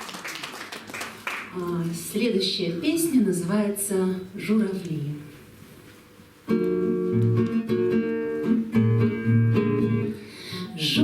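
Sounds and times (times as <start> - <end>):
guitar chords ringing: 6.5 - 11.0.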